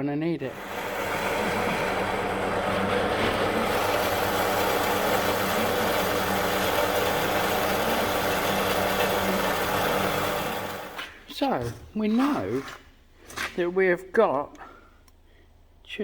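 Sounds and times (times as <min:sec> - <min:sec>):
machine humming and rushing: 0:00.5 - 0:11.0.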